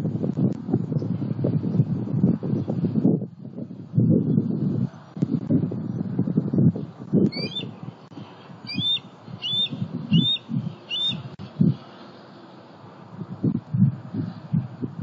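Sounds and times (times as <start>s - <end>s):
wind rumble on microphone: 0.0s - 15.0s
bird chirping: 7.3s - 11.4s.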